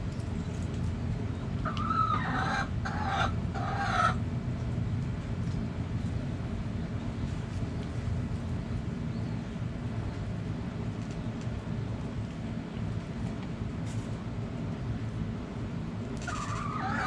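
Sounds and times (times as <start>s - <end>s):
steady low rumble: 0.0s - 16.8s
rooster crowing: 1.7s - 4.2s, 16.3s - 17.0s.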